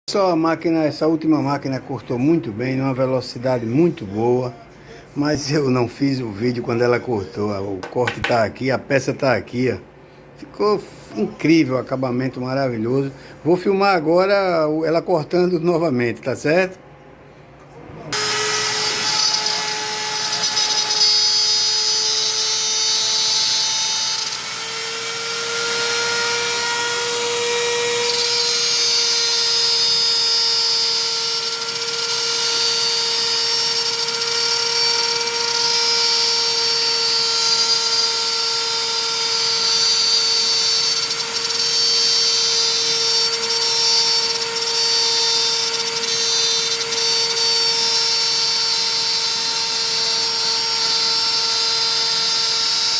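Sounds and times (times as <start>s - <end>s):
router spindle whine: 18.1s - 52.9s.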